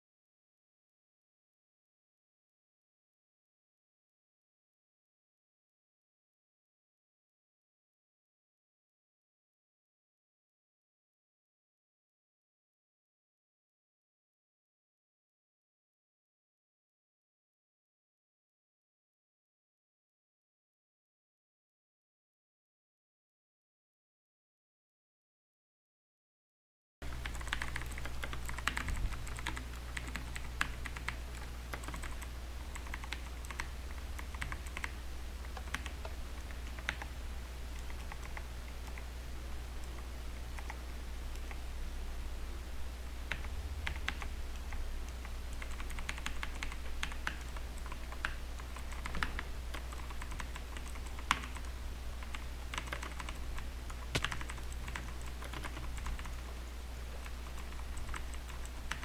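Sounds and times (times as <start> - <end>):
steady low hum: 27.0 - 59.0.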